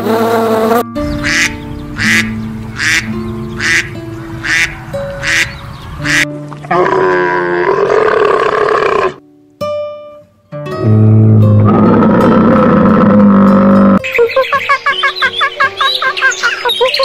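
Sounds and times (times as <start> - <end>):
background music with held notes: 0.6 - 7.4, 9.2 - 17.0
duck quacking: 1.1 - 6.3
camel calling: 1.2 - 9.2, 10.8 - 14.0.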